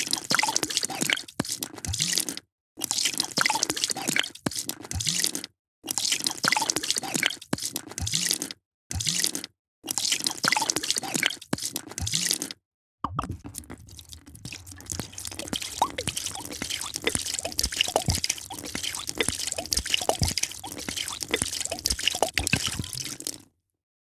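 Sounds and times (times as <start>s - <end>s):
liquid pouring into a glass: 13.1s - 23.4s.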